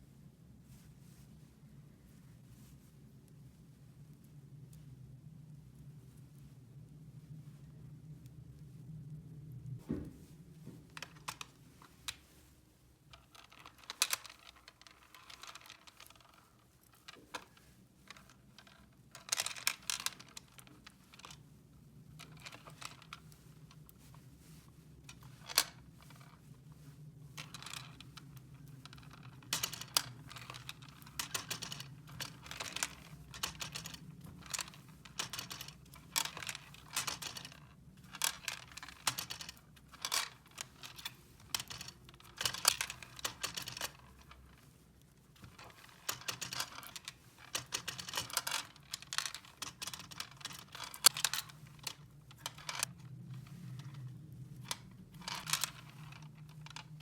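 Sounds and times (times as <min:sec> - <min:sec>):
faint low hum: 0:00.0 - 0:57.0
plastic toys clicking and tapping: 0:28.9 - 0:44.1, 0:45.5 - 0:53.0, 0:54.6 - 0:57.0.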